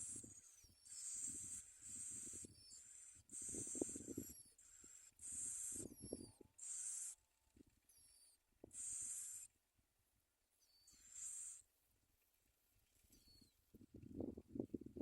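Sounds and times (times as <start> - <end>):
myna harsh hissing rasps: 0.0 - 6.0, 6.6 - 7.2, 8.7 - 9.5, 11.0 - 11.6.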